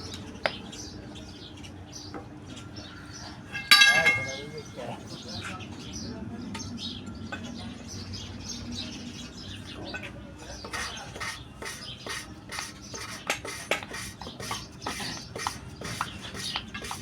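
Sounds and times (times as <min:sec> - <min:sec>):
valve lapping gritty scraping: 0:10.6 - 0:17.0.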